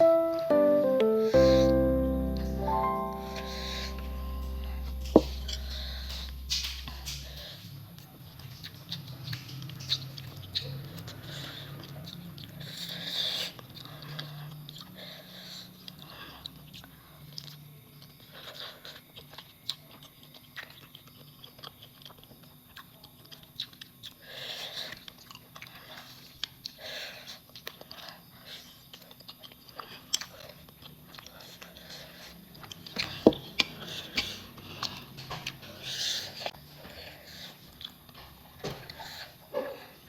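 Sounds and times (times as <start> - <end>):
person chewing and biting: 28.7 - 31.8.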